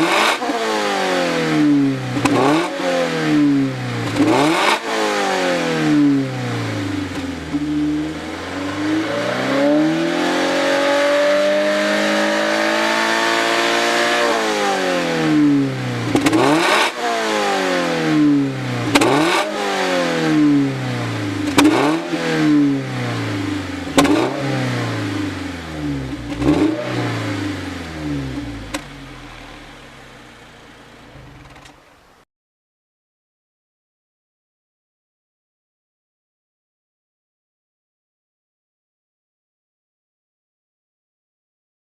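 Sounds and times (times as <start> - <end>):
car engine revving: 0.0 - 32.1.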